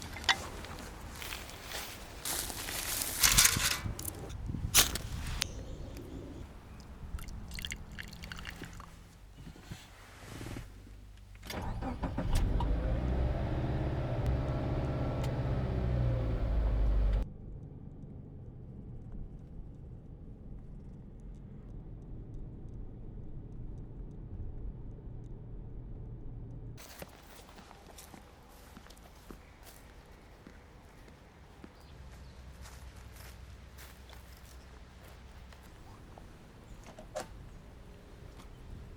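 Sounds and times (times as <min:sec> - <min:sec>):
car engine running: 0:10.9 - 0:26.3.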